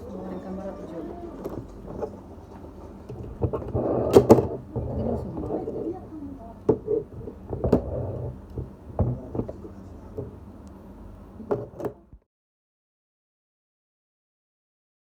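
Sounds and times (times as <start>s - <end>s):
low room hum: 0.0s - 12.3s
knocks and clatters: 1.4s - 6.0s, 6.6s - 10.4s.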